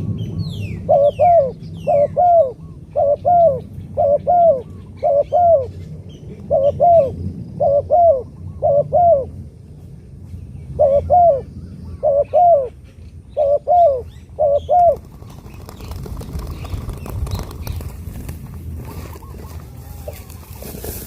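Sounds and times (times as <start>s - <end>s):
dove cooing: 0.8s - 9.4s, 10.8s - 12.8s, 13.4s - 16.9s, 18.8s - 20.5s
soft rustling: 17.7s - 21.0s.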